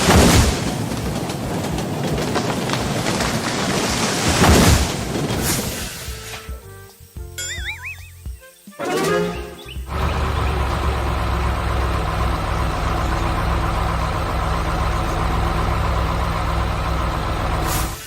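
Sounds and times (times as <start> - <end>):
heavy vehicle engine running: 9.9 - 18.0.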